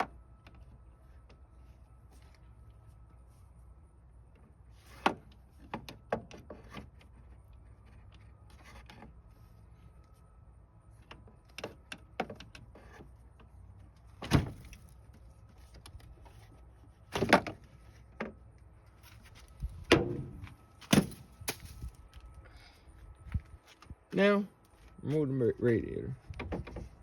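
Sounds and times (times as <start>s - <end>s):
car parts knocking and clunking: 4.3s - 9.2s, 11.0s - 22.3s, 26.2s - 27.0s.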